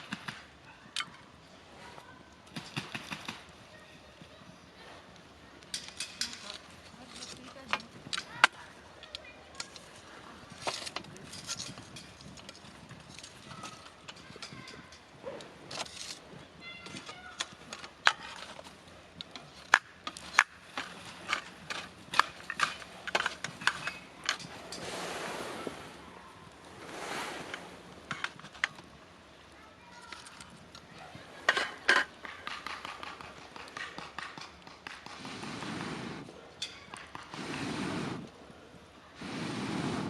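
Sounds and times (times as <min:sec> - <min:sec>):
campfire crackling and popping: 0:00.0 - 0:01.4, 0:02.0 - 0:39.5.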